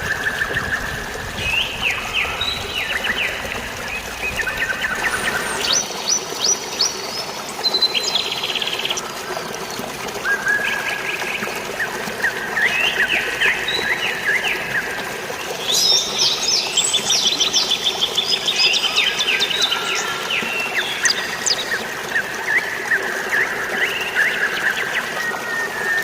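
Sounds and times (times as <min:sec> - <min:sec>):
rain falling: 0:00.0 - 0:07.6.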